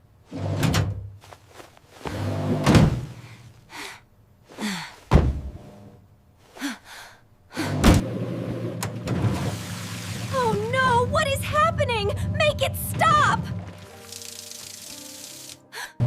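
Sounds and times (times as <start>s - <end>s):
thumps: 5.1s - 5.6s.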